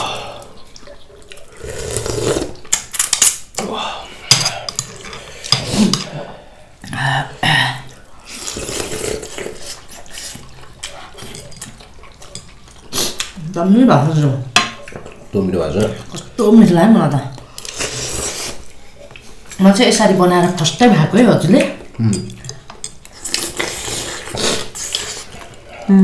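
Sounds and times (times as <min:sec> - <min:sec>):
slurping and chewing: 0:00.0 - 0:06.9, 0:07.9 - 0:13.4, 0:17.4 - 0:19.6, 0:21.8 - 0:25.9.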